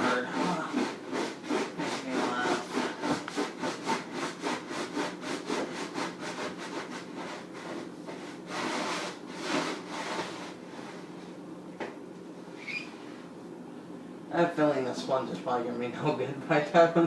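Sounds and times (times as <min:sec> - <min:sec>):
wet sponge scrubbing: 0:00.0 - 0:11.0.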